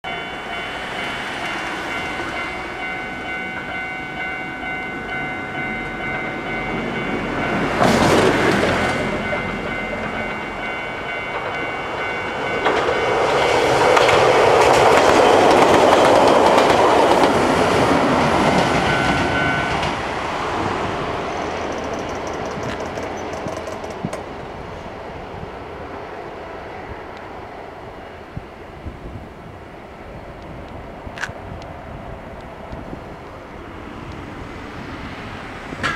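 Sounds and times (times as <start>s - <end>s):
steady high tones: 0.0s - 14.0s
train wheels clattering on rails: 0.1s - 24.4s, 35.6s - 35.9s.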